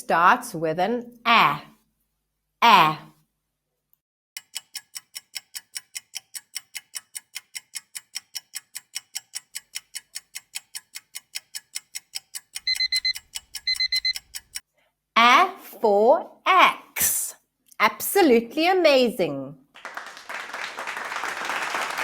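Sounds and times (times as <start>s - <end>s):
clock ticking: 4.4s - 14.6s
alarm clock beeping: 12.6s - 14.6s.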